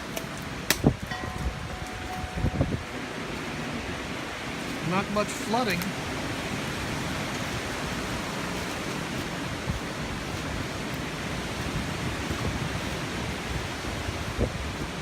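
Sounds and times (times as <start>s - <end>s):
hurricane wind: 0.0s - 15.0s
rain: 0.0s - 15.0s.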